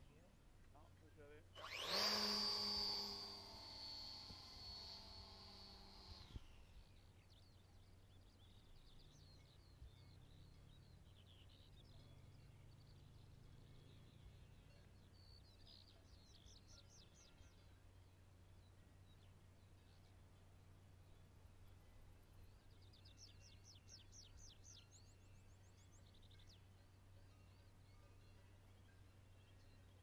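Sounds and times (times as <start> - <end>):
low background hum: 0.0 - 30.0
faint birds chirping and trilling: 1.1 - 30.0
high whine dropping in pitch: 1.6 - 6.6.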